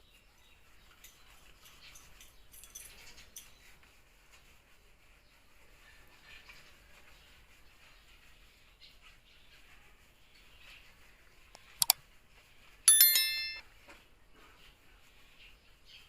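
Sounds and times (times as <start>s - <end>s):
metal object clanging: 12.9s - 13.6s.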